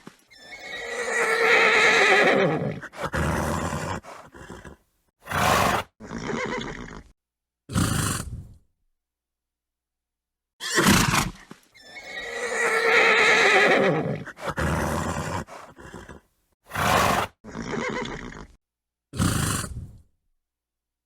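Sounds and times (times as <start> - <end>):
horse snorting: 0.0 - 7.1, 7.7 - 8.6, 10.6 - 18.6, 19.2 - 20.0
horse whinnying: 0.3 - 7.1, 10.6 - 18.6.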